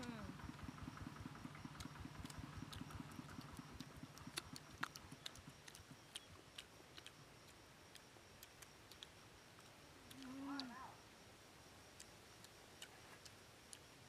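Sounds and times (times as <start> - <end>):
person eating and chewing: 2.2 - 9.2.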